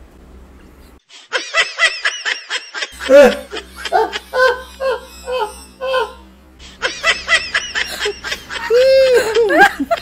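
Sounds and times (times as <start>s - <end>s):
man and woman laughing: 1.2s - 10.0s
high squeal: 3.7s - 6.4s.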